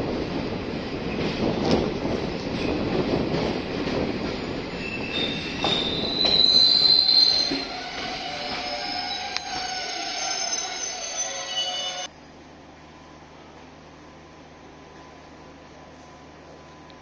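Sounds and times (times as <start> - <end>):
train wheels rumbling on rail: 0.0 - 12.1
high metallic train squeal: 4.2 - 12.1.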